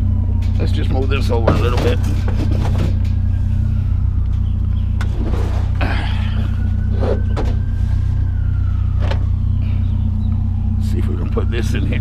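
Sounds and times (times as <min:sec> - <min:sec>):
vehicle engine idling: 0:00.0 - 0:12.0
scrap metal knocks and clanks: 0:01.3 - 0:03.3.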